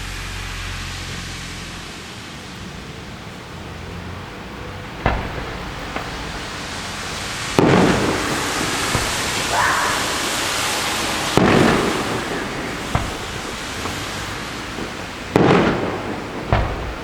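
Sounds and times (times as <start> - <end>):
fireworks bursts: 0.0 - 17.0
steady hiss: 0.0 - 17.0
sharp crack: 4.8 - 17.0.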